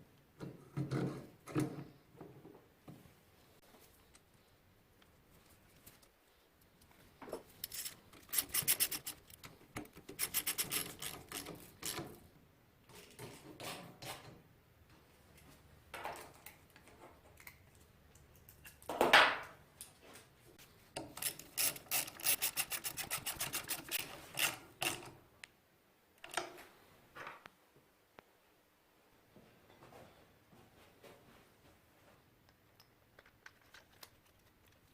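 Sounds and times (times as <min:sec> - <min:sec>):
hand tools clicking and knocking: 0:07.4 - 0:12.2, 0:21.0 - 0:25.2.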